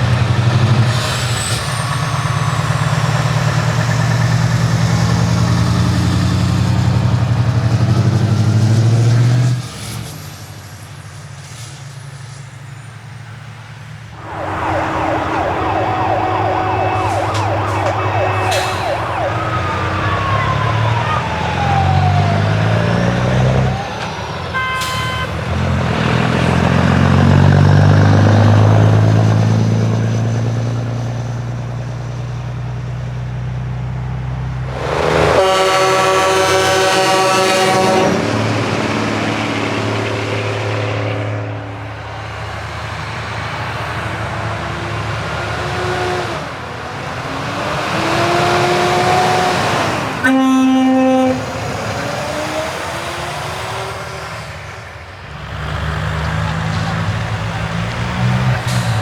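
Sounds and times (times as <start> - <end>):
heavy trucks driving past: 0.0 - 59.0
siren-like wail: 14.1 - 25.6, 34.7 - 38.9, 41.6 - 54.5
truck air horns: 14.2 - 25.8, 34.7 - 54.1.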